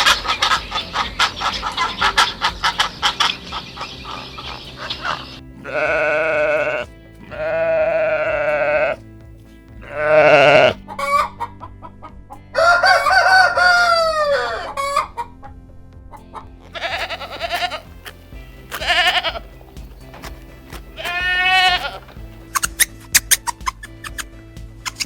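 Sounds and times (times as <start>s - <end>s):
chicken calls: 0.0s - 9.0s, 9.8s - 11.7s, 12.5s - 15.4s, 16.7s - 19.5s, 20.2s - 23.8s
background music: 0.0s - 25.0s
rooster crowing: 12.6s - 15.0s.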